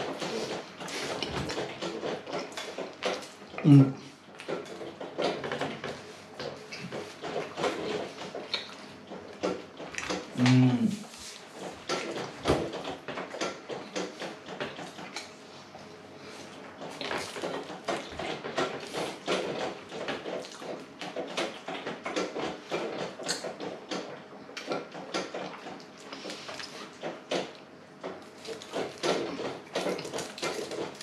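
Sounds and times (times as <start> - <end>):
person chewing food: 0.0 - 15.8, 16.4 - 21.4, 22.1 - 31.0.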